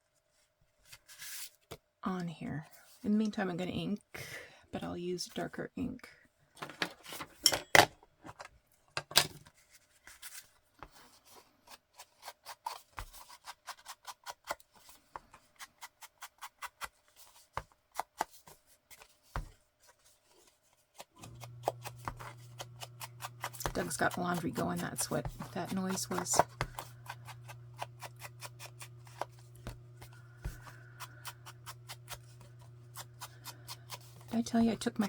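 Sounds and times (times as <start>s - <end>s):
laundry machines humming: 21.2s - 35.0s.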